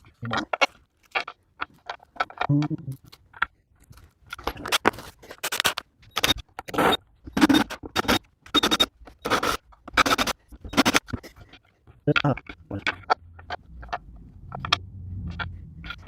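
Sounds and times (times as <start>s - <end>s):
hand tool scraping: 6.7s - 16.0s.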